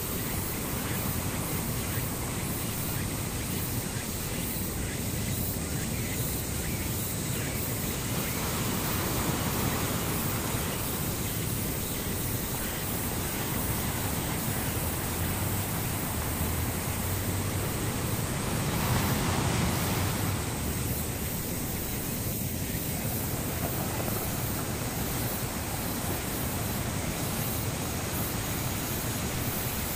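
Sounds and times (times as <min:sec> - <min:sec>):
steady rushing noise: 0:00.0 - 0:29.9.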